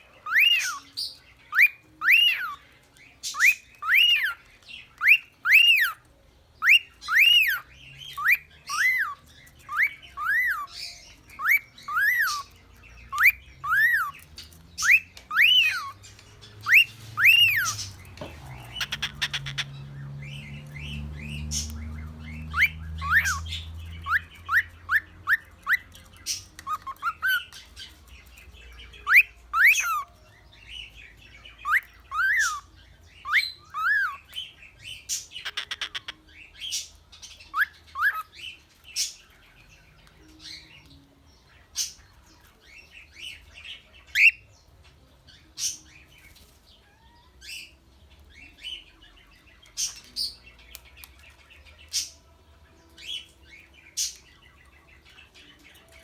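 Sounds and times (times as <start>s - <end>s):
cockatiel chirping and whistling: 0.2s - 6.0s, 6.6s - 16.0s, 16.6s - 18.0s, 18.7s - 19.7s, 22.4s - 28.0s, 28.9s - 30.2s, 31.6s - 36.8s, 37.4s - 38.4s, 44.1s - 44.5s.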